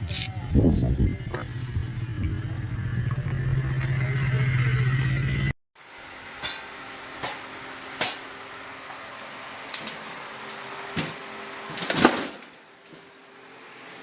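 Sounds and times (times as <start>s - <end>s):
sharp knocks and clatters: 11.0s - 13.1s.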